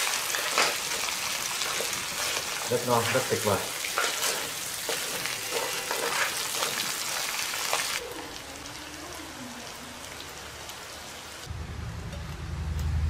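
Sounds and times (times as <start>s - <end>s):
food sizzling in a wok: 0.0s - 11.5s
spatula scraping and tapping: 3.9s - 6.9s
low hum: 11.5s - 13.0s.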